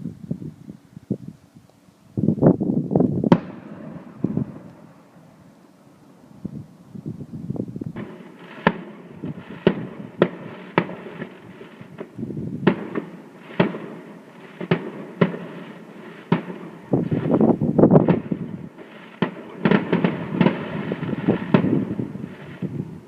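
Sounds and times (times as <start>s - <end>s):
firework crackle: 2.4s - 6.8s, 7.6s - 23.0s
firework bangs: 3.2s - 5.4s, 7.9s - 23.0s.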